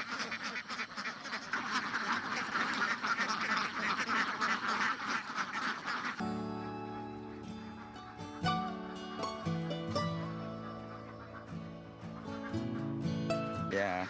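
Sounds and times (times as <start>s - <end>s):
ducks quacking: 0.0s - 14.0s
music: 6.2s - 14.0s.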